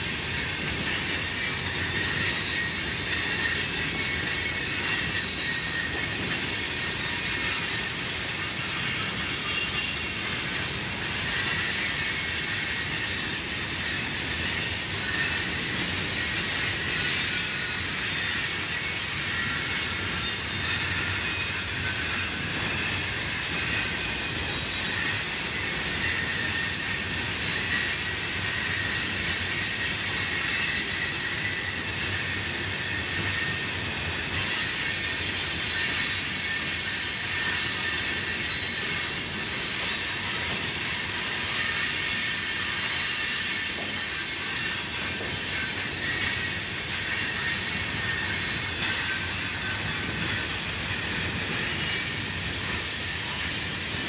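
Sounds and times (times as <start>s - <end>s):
freight train rumble: 0.0s - 54.0s
train wheels squealing on rails: 0.0s - 54.0s.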